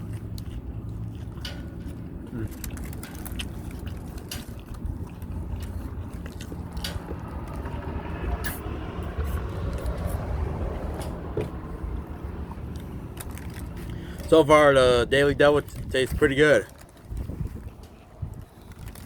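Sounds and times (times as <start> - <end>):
person chewing food: 0.0 - 14.3
steady low rumble: 0.0 - 19.0.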